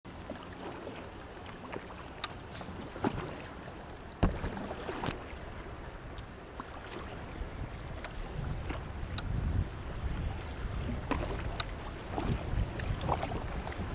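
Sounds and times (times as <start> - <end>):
rushing river water: 0.1 - 13.9
water splashes: 0.1 - 13.9
kayak knocks: 4.2 - 5.3, 10.2 - 13.9.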